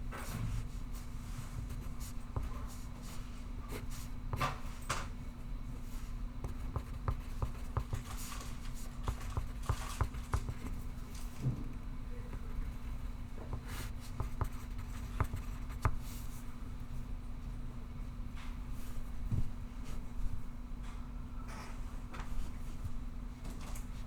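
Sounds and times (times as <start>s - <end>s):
steady low hum: 0.0s - 23.3s
pencil writing on paper: 1.6s - 4.6s, 6.4s - 10.8s, 13.4s - 16.2s.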